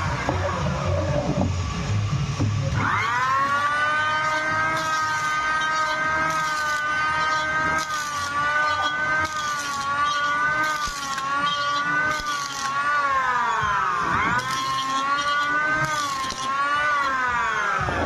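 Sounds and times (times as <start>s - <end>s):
electric planer motor whine: 0.0s - 18.0s
planer blades cutting wood: 0.0s - 18.0s.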